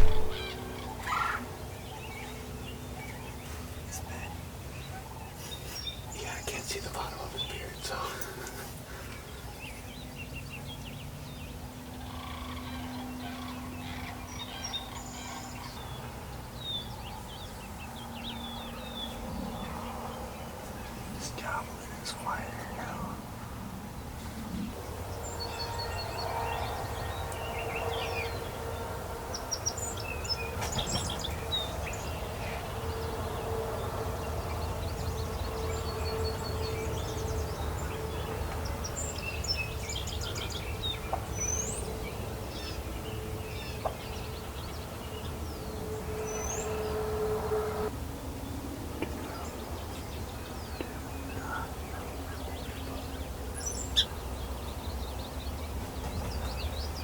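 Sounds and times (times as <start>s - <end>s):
low rumble: 0.0s - 0.8s
steady hum: 0.0s - 1.6s
songbirds chirping and whistling: 0.0s - 57.0s.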